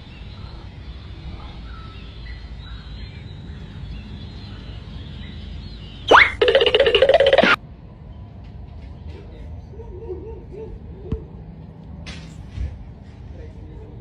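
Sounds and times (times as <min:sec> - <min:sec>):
small bird chirping: 0:06.0 - 0:07.6
harsh pulsing buzzy call: 0:06.1 - 0:07.6.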